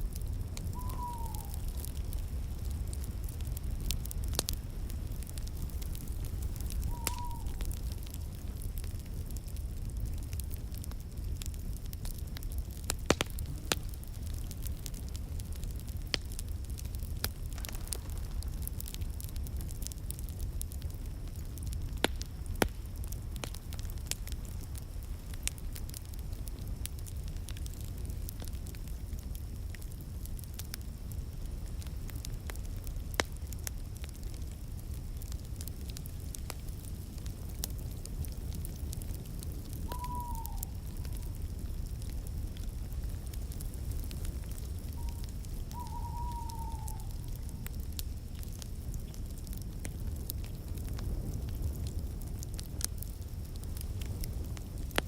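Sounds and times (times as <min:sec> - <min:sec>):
fire crackling and popping: 0:00.0 - 0:55.0
short falling whistle: 0:00.8 - 0:01.6, 0:06.7 - 0:07.7.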